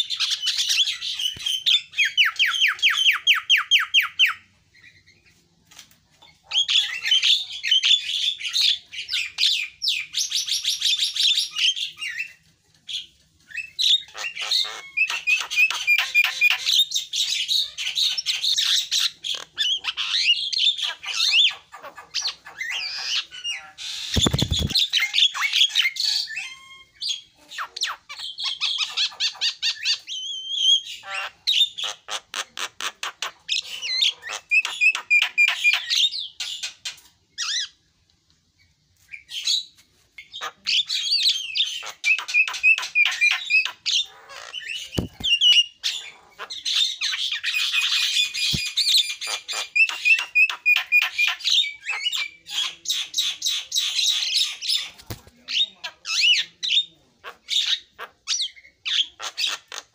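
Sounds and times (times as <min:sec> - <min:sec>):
myna singing and squawking: 0:13.5 - 0:36.2, 0:40.2 - 0:59.9.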